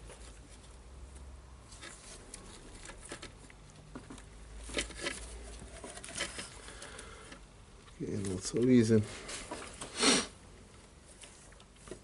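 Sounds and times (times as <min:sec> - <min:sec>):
small clicks and scrapes: 0:00.0 - 0:10.0, 0:10.7 - 0:12.0.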